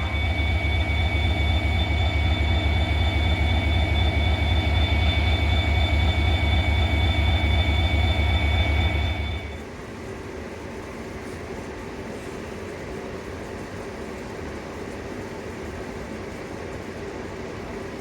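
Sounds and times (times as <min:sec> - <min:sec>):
diesel locomotive engine running: 0:00.0 - 0:09.8.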